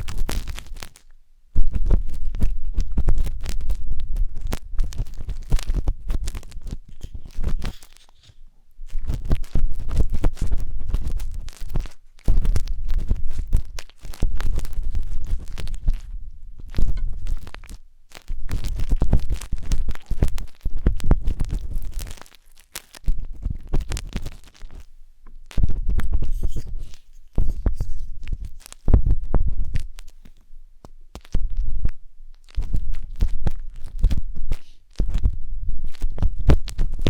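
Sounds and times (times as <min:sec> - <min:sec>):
wooden skewer scraping microphone: 0:01.6 - 0:17.8, 0:25.6 - 0:30.2.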